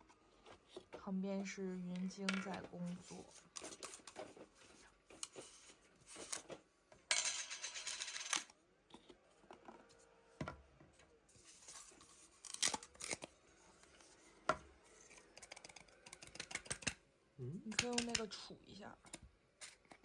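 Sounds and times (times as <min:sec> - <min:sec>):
packaging ripping open: 0:12.3 - 0:13.4.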